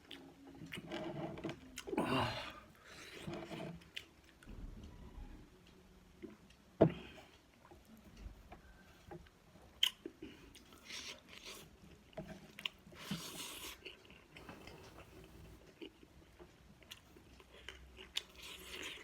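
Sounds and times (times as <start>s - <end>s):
person chewing food: 0.0s - 4.4s, 9.2s - 19.0s.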